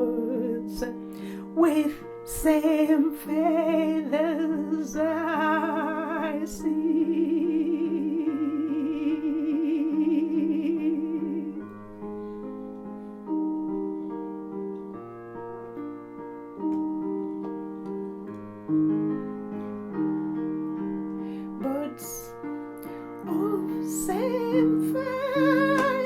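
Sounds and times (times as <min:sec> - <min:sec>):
keyboard chords: 0:00.0 - 0:26.0.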